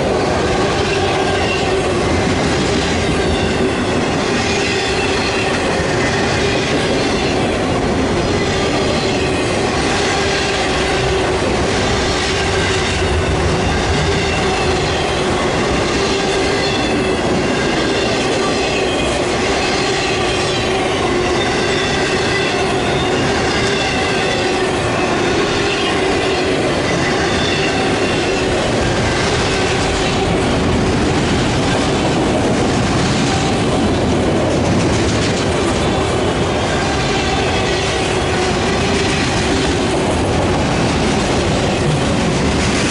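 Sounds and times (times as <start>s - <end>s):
wheels clicking over rail joints: 29.2s - 36.2s.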